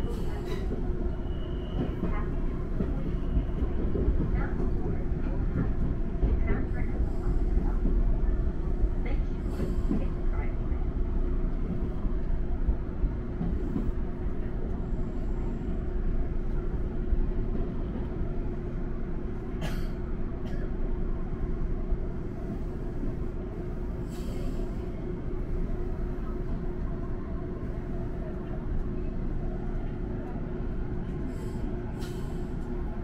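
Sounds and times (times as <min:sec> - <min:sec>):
wheels rumbling on rails: 0:00.0 - 0:33.0.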